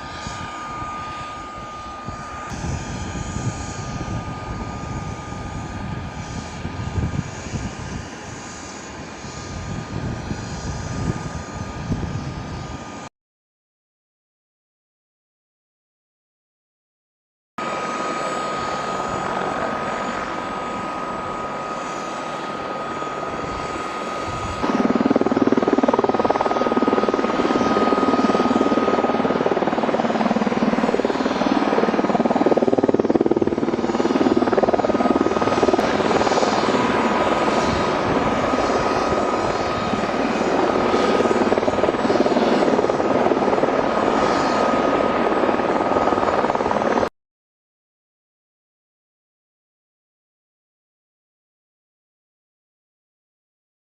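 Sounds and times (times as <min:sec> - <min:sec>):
helicopter rotor and engine whine: 0:00.0 - 0:13.1, 0:17.6 - 0:47.1.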